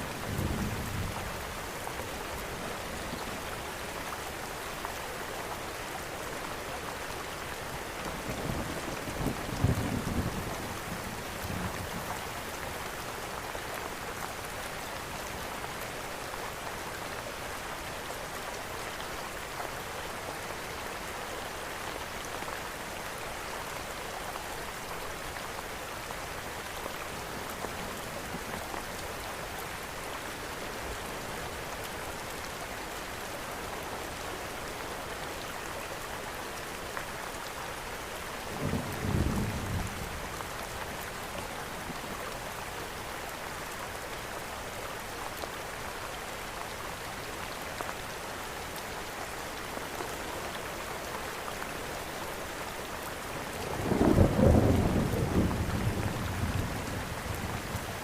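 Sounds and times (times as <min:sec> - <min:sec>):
steady rain falling: 0:00.0 - 0:58.0
low rumble of thunder: 0:53.6 - 0:58.0.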